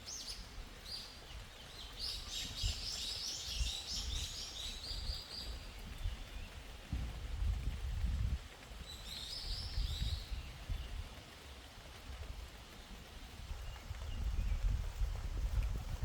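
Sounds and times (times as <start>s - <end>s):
faint hiss of rain: 0.0s - 16.0s
low rumbling on microphone: 5.8s - 8.5s, 13.4s - 16.0s.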